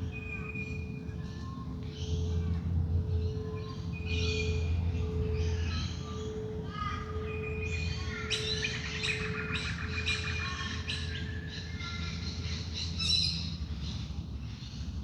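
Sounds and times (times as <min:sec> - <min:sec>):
birds chirping and trilling: 0:07.2 - 0:14.8.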